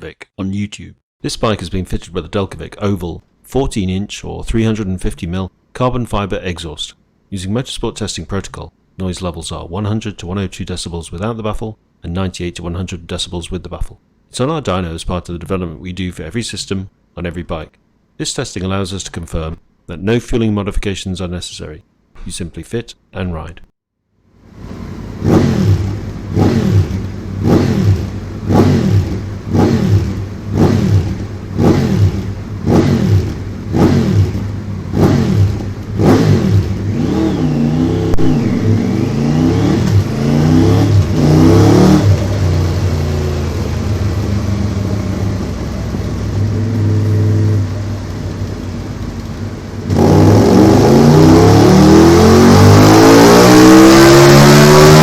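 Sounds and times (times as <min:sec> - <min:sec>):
motorcycle engine revving: 0:24.6 - 0:55.0.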